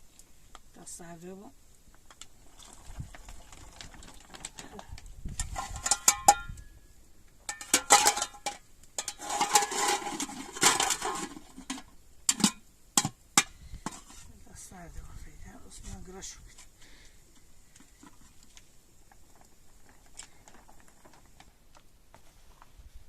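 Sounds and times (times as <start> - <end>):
metal dishes clinking: 7.5 - 13.5
utensils scraping and rattling: 7.6 - 12.5.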